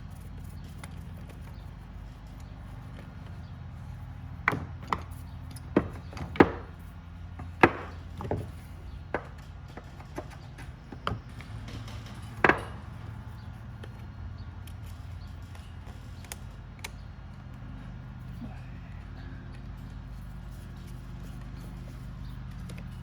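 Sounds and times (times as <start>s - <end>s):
steady low hum: 0.0s - 23.0s
small parts and tools knocking: 0.1s - 17.1s.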